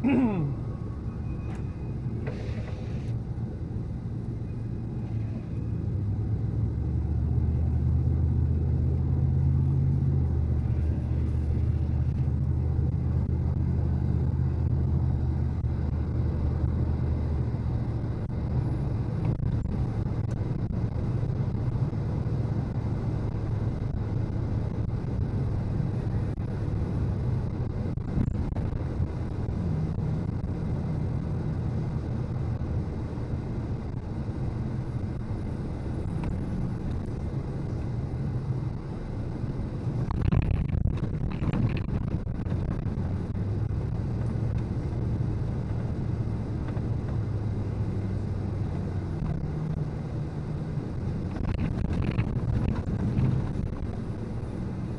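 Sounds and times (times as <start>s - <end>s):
car engine hum: 0.0s - 54.9s
road noise rumble: 0.0s - 54.9s.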